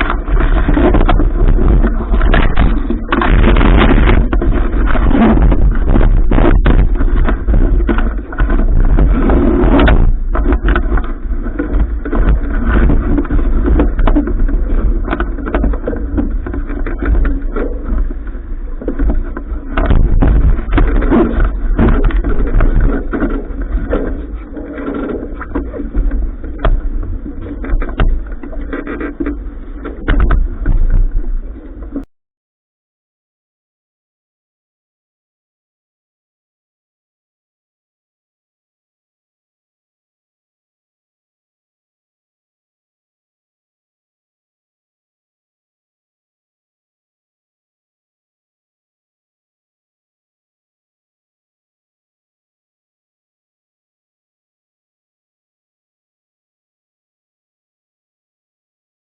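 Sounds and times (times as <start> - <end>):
knocks and clatters: 0.0 - 18.1, 18.8 - 24.2, 24.8 - 31.2
wind buffeting microphone: 0.0 - 32.1.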